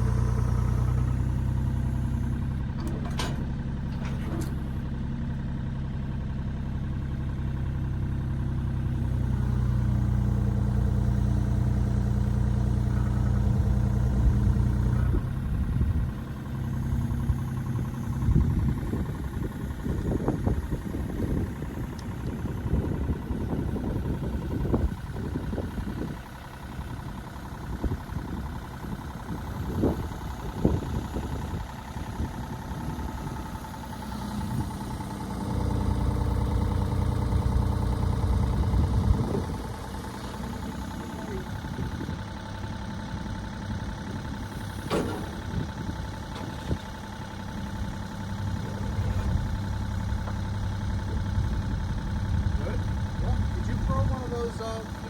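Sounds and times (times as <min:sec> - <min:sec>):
excavator diesel engine running: 0:00.0 - 0:55.0
knocks and clanks: 0:02.8 - 0:04.7, 0:44.8 - 0:45.5.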